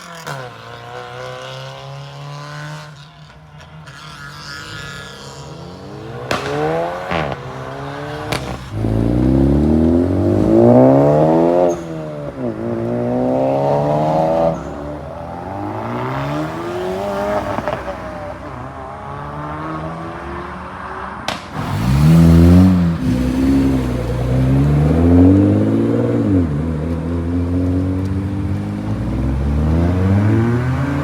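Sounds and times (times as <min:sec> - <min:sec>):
car engines revving: 0:00.0 - 0:31.0
sharp exhaust pops: 0:06.1 - 0:12.6, 0:21.3 - 0:25.0.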